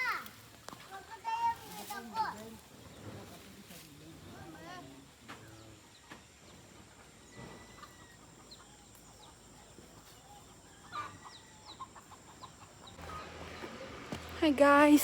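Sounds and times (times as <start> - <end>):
faint chickens clucking: 2.4 - 14.3.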